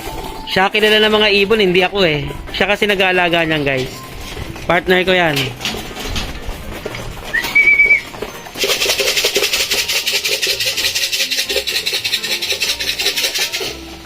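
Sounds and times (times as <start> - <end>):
fast even rattling: 2.6 - 13.9
call whistle: 7.3 - 8.1.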